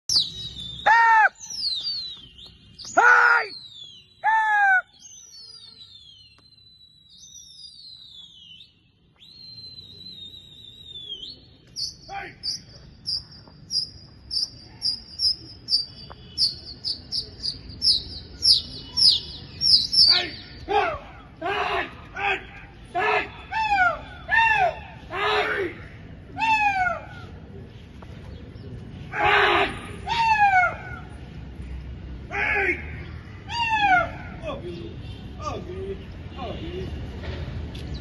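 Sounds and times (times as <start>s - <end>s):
high bird chirps: 0.0s - 20.7s
birds whistling: 0.1s - 21.4s
lower pitched bird calls: 0.1s - 21.4s.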